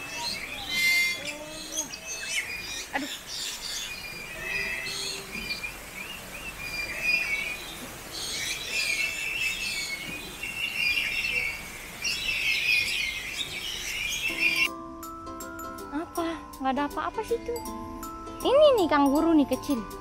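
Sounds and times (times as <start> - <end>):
many birds chirping and trilling: 0.0 - 14.7.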